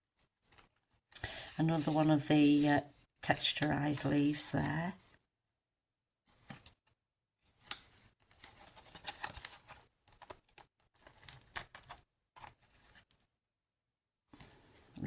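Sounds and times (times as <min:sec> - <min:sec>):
paper pages rustling: 0:06.3 - 0:06.8, 0:07.5 - 0:13.2.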